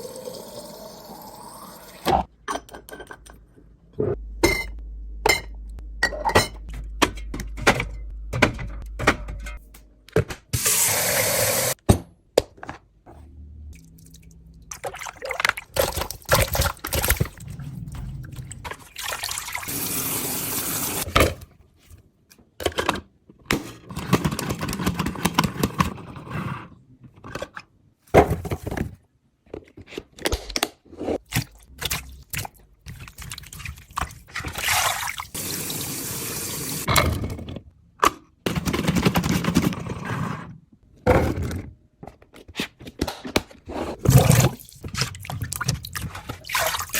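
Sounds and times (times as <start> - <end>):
water pouring and running: 0.0 - 2.1, 13.7 - 21.1, 31.4 - 36.9, 44.1 - 46.9.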